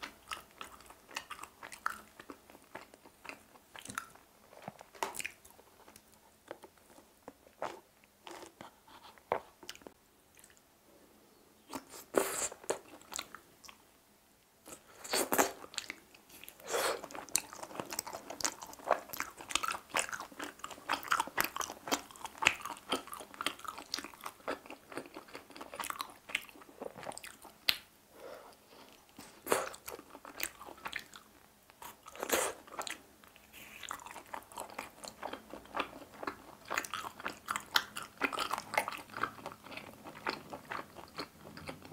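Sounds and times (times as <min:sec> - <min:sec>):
chewing and biting: 0:15.1 - 0:27.8, 0:33.8 - 0:41.9.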